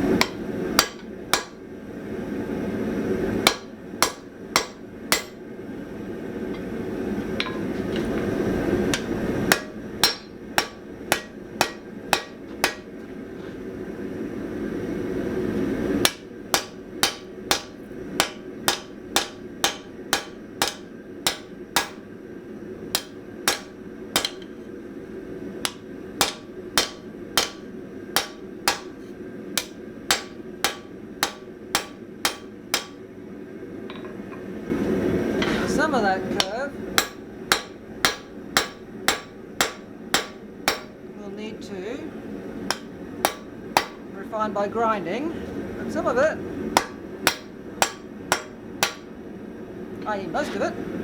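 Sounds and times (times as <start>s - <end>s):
hammer striking steel on anvil: 0.1s - 1.6s, 3.4s - 5.4s, 7.4s - 8.1s, 8.9s - 13.0s, 16.0s - 22.1s, 22.9s - 24.6s, 25.6s - 29.0s, 29.6s - 33.0s, 36.3s - 41.0s, 42.7s - 44.1s, 46.8s - 49.1s.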